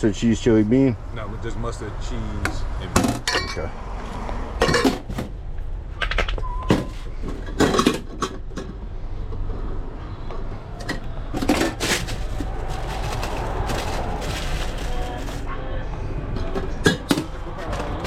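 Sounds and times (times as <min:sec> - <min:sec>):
utensils and lids clinking: 0:03.1 - 0:03.7, 0:04.6 - 0:05.3, 0:06.1 - 0:08.7, 0:10.8 - 0:15.5, 0:16.4 - 0:18.0.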